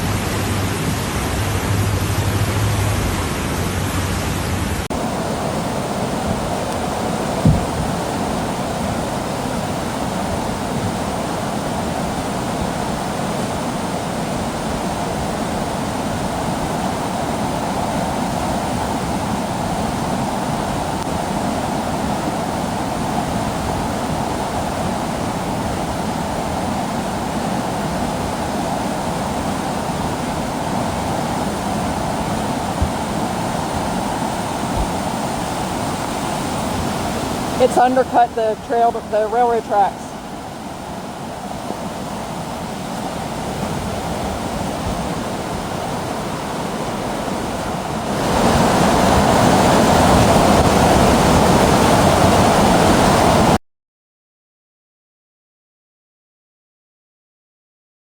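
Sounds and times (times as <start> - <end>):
floodwater rushing: 0.0 - 53.6
short knock: 7.4 - 7.8.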